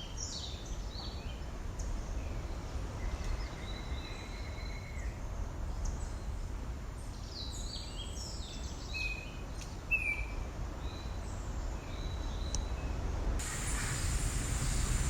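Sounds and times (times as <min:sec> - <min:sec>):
low rumble: 0:13.4 - 0:15.0.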